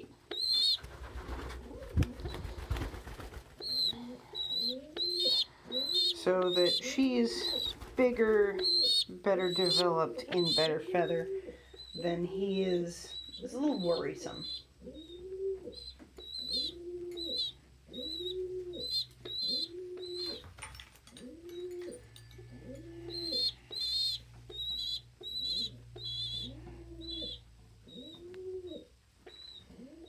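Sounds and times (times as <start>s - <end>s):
pigeons cooing: 0.0s - 20.6s, 21.2s - 30.0s
squab peeping: 3.6s - 20.4s, 23.0s - 30.0s.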